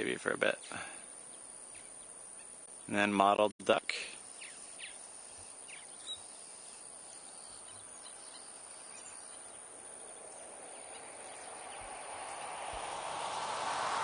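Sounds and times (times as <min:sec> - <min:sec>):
broad rushing noise: 0:08.6 - 0:14.0.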